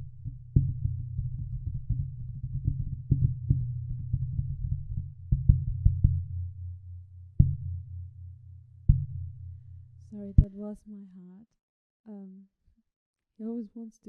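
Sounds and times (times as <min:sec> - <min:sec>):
steady low hum: 0:00.0 - 0:10.9
heartbeat thumps: 0:10.0 - 0:10.8.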